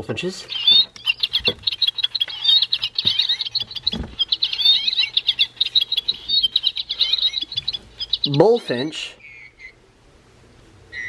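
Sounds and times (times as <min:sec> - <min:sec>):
recorded bird chirps and twitters: 0:00.0 - 0:09.9.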